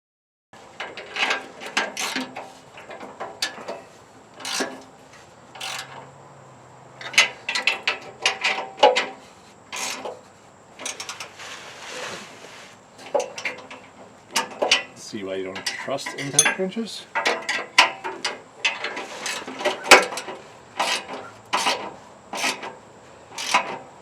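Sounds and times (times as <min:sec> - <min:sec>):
metal scraping on metal: 0:00.6 - 0:06.1, 0:07.0 - 0:14.9, 0:15.5 - 0:23.9
metal tools clinking: 0:00.7 - 0:04.9, 0:05.5 - 0:06.1, 0:07.0 - 0:10.2, 0:13.1 - 0:22.7.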